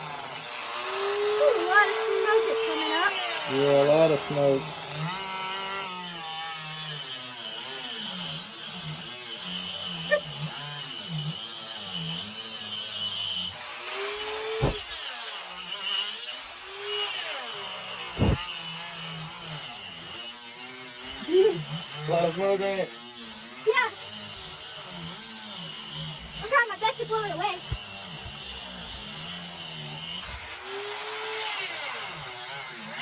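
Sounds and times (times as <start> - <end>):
power tool cutting wood: 0.0 - 33.0.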